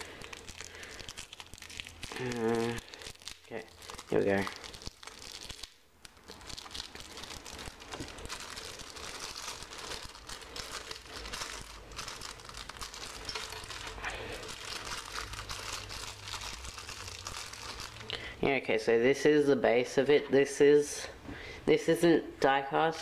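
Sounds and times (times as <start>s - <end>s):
packaging tearing: 0.0s - 18.2s
packaging crinkling: 0.0s - 18.3s.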